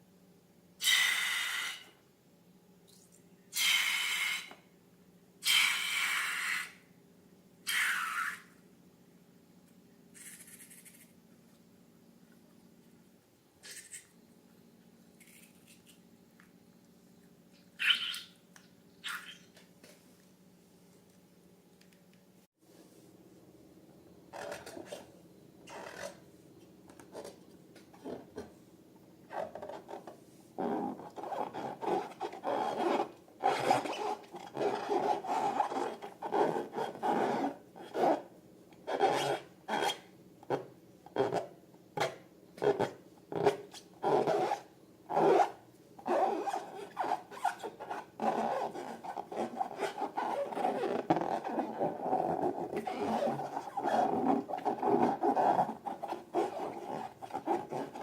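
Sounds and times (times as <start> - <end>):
rubbing and scraping balloons: 29.3 - 38.3, 42.6 - 58.0.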